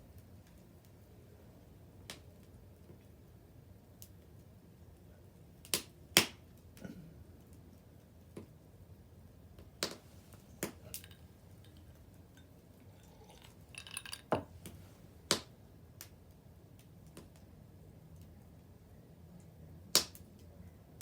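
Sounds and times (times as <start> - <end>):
wood fire crackling: 9.6 - 15.4.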